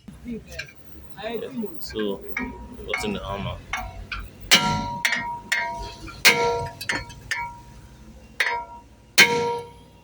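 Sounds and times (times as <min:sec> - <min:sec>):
hammer striking metal disc: 0:02.4 - 0:10.0
metal disc ringing: 0:02.4 - 0:10.0.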